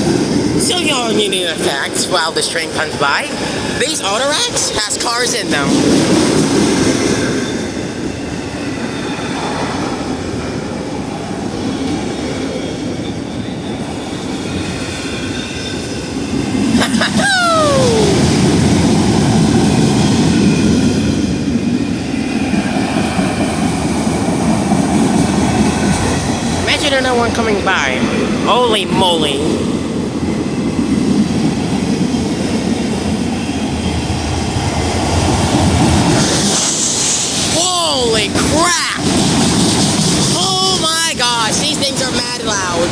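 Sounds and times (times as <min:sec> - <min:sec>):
freight train wheels rumbling on rails: 0:00.0 - 0:42.9.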